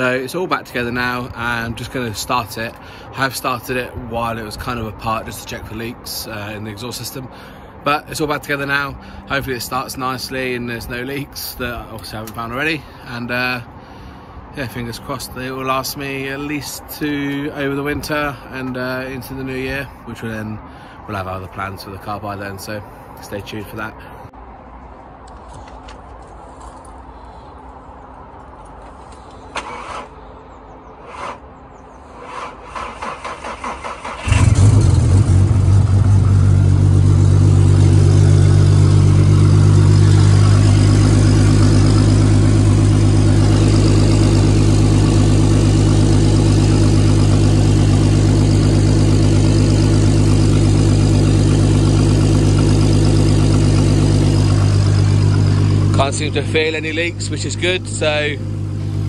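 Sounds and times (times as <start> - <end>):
car engine idling: 34.0 - 59.0.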